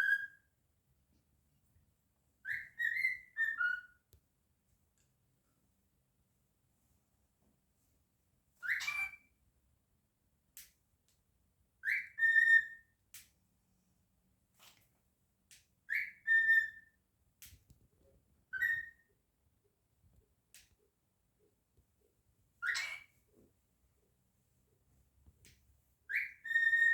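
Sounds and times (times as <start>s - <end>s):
cockatiel whistling: 2.5s - 3.9s, 8.6s - 9.2s, 11.8s - 12.8s, 15.9s - 16.9s, 18.5s - 19.1s, 22.6s - 23.1s, 26.1s - 26.9s.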